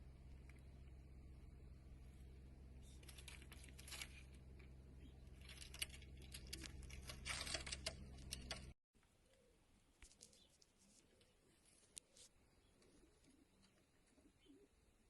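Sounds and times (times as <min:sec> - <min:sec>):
low electrical hum: 0:00.0 - 0:08.8
scratching and rustling clicks: 0:05.4 - 0:08.8.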